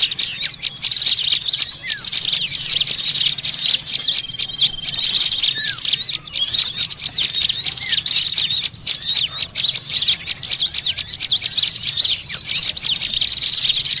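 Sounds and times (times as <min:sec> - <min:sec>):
small songbirds chattering: 0:00.0 - 0:14.0.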